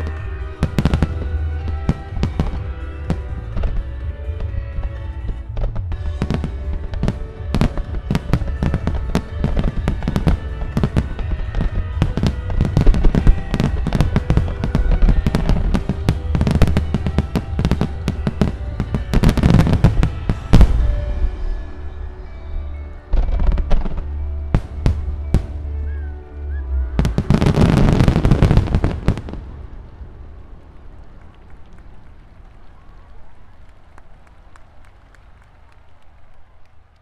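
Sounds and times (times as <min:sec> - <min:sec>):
fireworks bursting and crackling: 0:00.0 - 0:26.0, 0:27.0 - 0:33.2
background music: 0:00.0 - 0:31.3.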